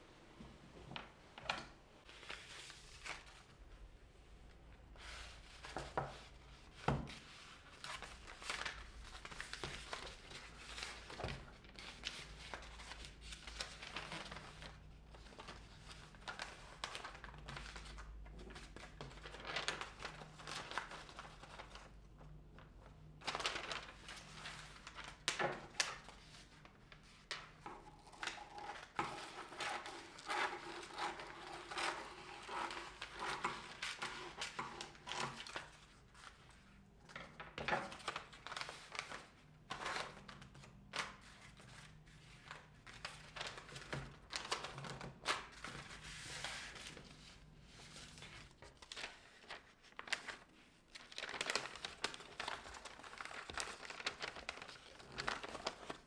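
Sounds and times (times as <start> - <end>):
paper crinkling and rustling: 0.4 - 3.7, 4.9 - 56.0.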